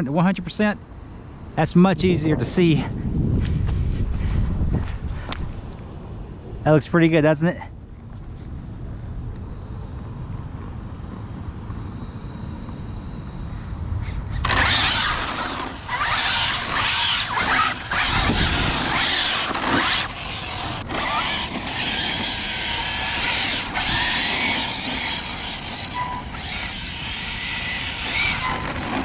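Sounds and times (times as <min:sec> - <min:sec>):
low wind rumble: 0:00.0 - 0:29.0
electric motor whining: 0:14.4 - 0:29.0.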